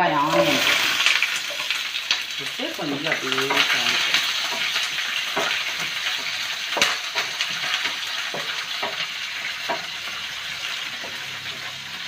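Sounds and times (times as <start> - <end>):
onion sizzling in oil: 0.0 - 12.0
spoon knocking against pan: 3.5 - 10.0.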